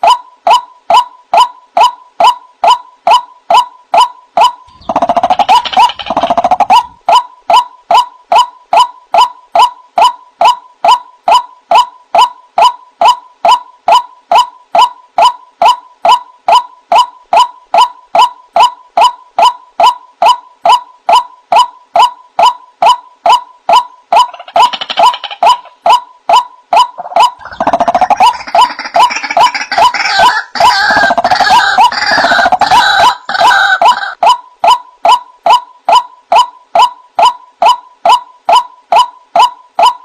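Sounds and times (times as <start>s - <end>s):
repeated bird call note: 0.0s - 40.0s
chorus of harsh bird calls: 4.7s - 7.0s, 27.0s - 34.2s.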